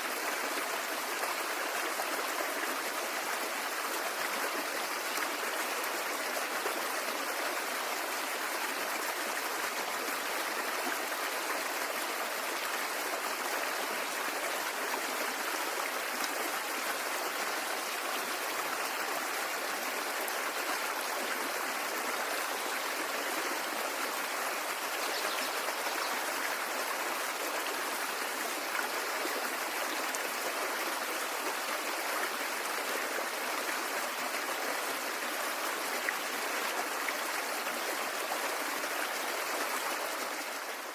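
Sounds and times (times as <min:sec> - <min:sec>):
stream of running water: 0:00.0 - 0:40.9.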